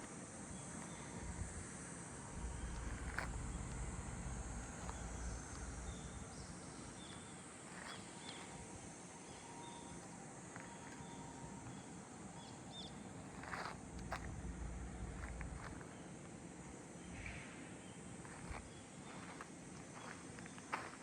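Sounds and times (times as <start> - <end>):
background hiss: 0.0 - 21.0.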